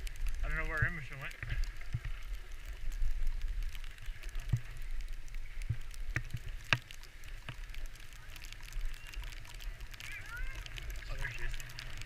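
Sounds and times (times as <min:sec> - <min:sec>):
skis sliding over snow: 0:00.0 - 0:12.0
wind rumbling on microphone: 0:00.0 - 0:12.0.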